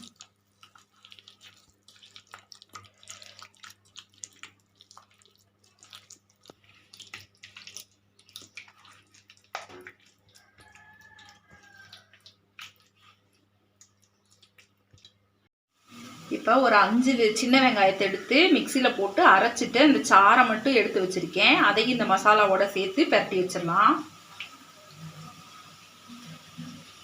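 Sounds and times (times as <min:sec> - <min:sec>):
hands squelching meat in marinade: 0:00.0 - 0:15.3.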